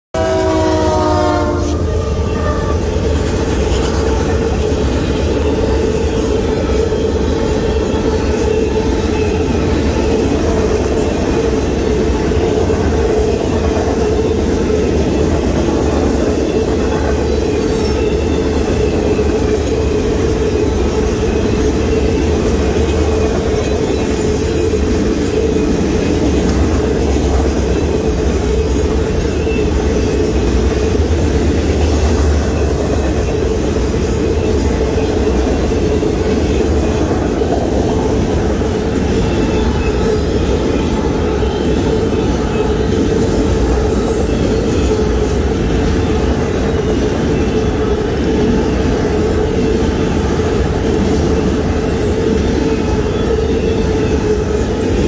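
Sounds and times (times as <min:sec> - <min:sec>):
train horn: 0:00.2 - 0:04.6.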